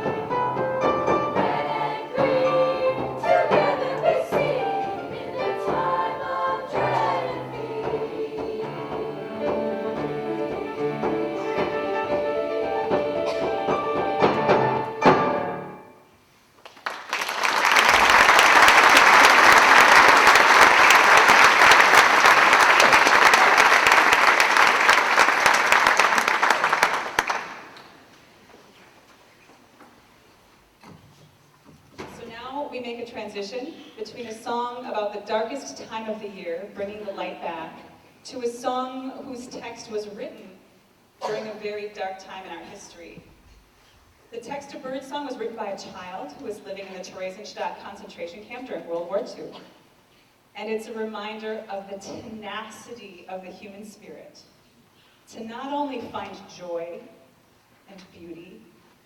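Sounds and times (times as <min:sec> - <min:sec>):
choir singing: 0:00.0 - 0:15.8
audience applauding: 0:16.6 - 0:28.0.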